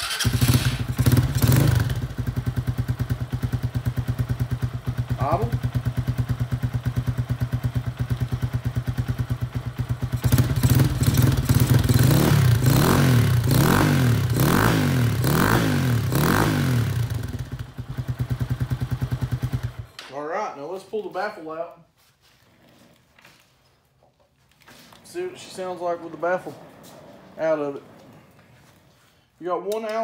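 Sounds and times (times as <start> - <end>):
engine revving: 0.0 - 4.3, 10.0 - 19.8
motorcycle engine idling: 0.0 - 19.9.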